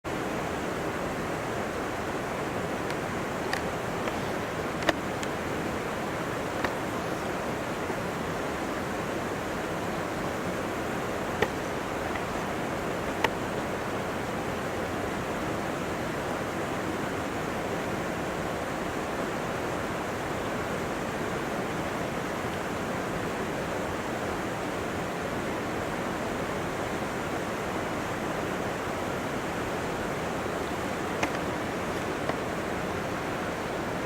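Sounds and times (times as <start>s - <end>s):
steady rushing noise: 0.1s - 15.4s, 28.7s - 34.0s.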